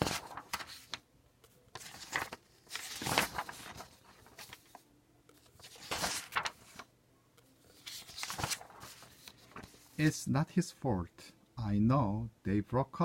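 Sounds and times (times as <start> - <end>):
book pages rustling: 0.0 - 6.9, 7.5 - 10.1.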